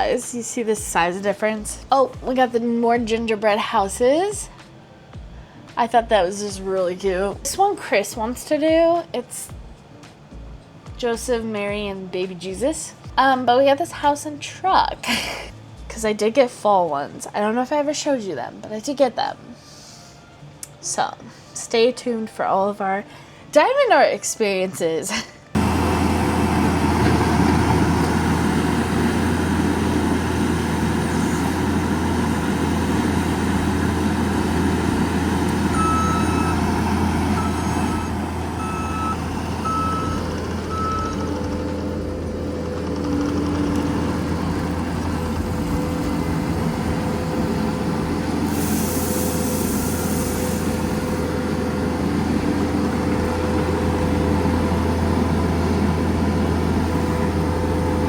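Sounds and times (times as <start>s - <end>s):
reversing alarm beeping: 25.6s - 42.3s, 43.8s - 55.6s
heavy truck engine running: 25.6s - 58.0s
hissing air burst: 48.3s - 51.3s.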